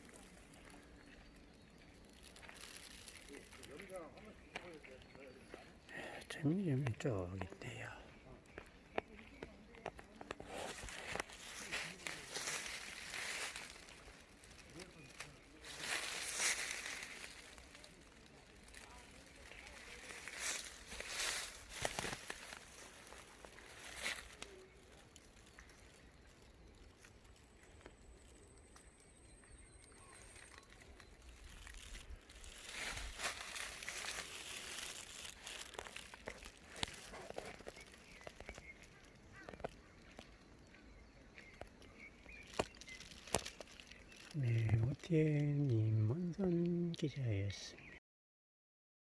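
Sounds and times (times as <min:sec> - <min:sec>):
rustling of leaves and brush: 0:00.0 - 0:48.0
small twigs snapping: 0:02.0 - 0:03.9, 0:09.9 - 0:29.0, 0:29.8 - 0:40.8, 0:41.4 - 0:44.8.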